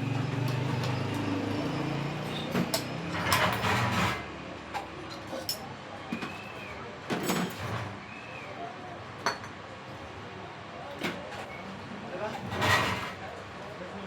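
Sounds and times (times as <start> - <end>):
metal scraping rattle: 2.4 - 4.3, 12.4 - 13.2.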